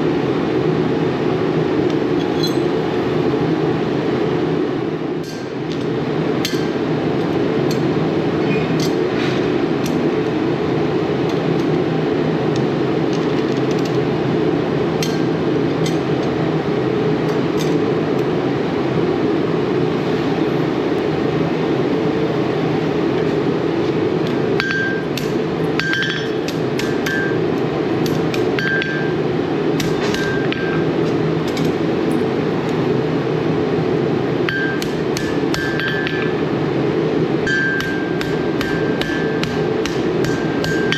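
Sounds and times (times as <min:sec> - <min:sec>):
hammer tapping on metal tongs: 0:15.0 - 0:16.0, 0:24.6 - 0:29.2, 0:34.5 - 0:36.4, 0:37.5 - 0:40.9
ringing metallic strikes: 0:24.6 - 0:29.2, 0:34.5 - 0:36.4, 0:37.4 - 0:40.9.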